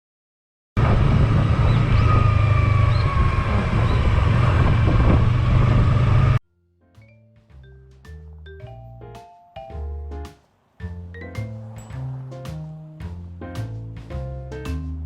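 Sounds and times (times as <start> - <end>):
motorcycle engine running: 0.8 - 6.4
wind rush on microphone: 0.8 - 6.4
soft mallet percussion music: 6.8 - 15.0.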